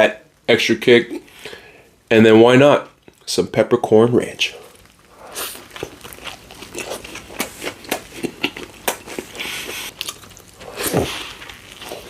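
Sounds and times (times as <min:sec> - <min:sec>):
biting and chewing sandwich: 0:04.6 - 0:12.0
wet mouth sounds: 0:04.7 - 0:12.0.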